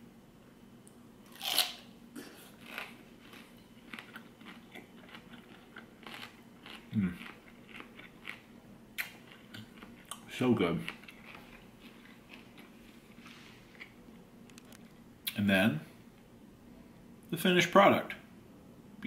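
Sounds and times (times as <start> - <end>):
bite into crisp pineapple: 1.3 - 8.4
crunchy juicy chewing: 1.3 - 14.0.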